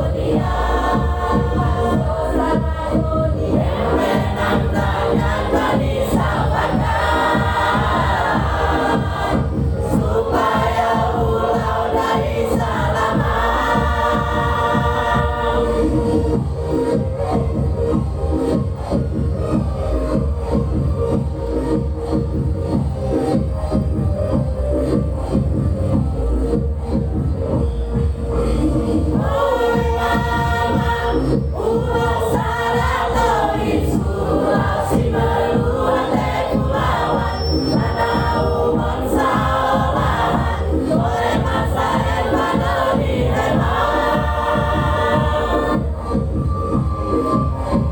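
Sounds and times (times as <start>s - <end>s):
choir singing held notes: 0.0s - 16.3s, 29.1s - 46.3s
musical accompaniment with low beat: 0.0s - 47.9s.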